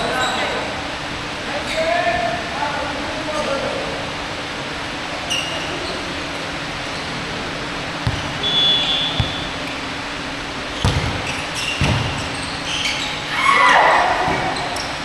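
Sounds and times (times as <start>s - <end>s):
basketball bouncing on court: 8.1s - 10.2s, 10.8s - 12.0s.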